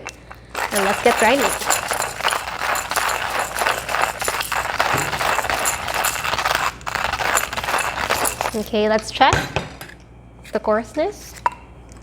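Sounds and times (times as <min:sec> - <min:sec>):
hand coffee grinder crunching beans: 0:00.0 - 0:08.8.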